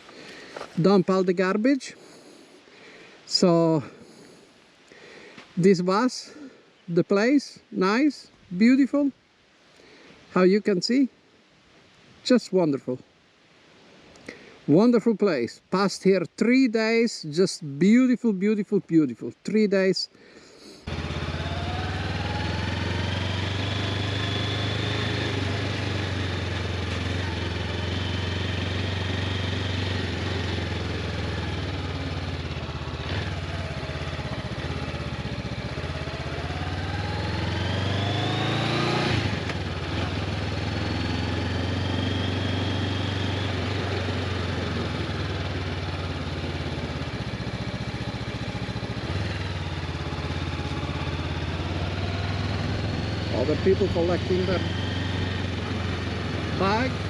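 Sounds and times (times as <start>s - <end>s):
motorcycle engine running: 20.9s - 57.0s.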